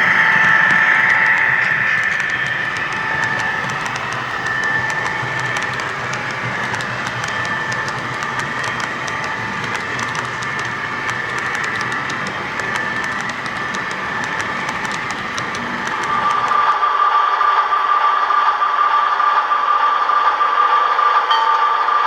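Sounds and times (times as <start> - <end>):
wheels clicking over track: 0.0 - 16.6
model train motor whine: 0.0 - 17.1.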